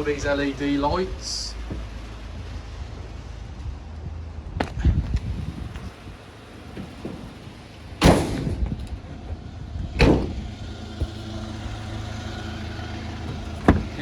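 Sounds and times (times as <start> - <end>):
diesel engine idling: 0.0 - 14.0
van doors slamming: 5.9 - 14.0.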